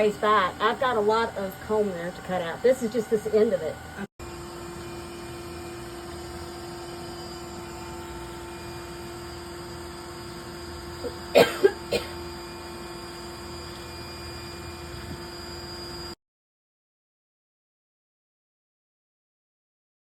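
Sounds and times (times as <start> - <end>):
steady hum: 0.0 - 16.2
person coughing: 11.0 - 12.2.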